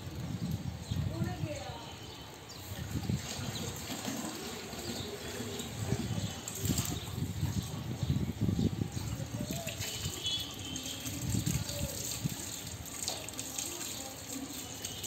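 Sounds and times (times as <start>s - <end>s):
water splashing: 3.0s - 7.4s, 9.1s - 15.0s.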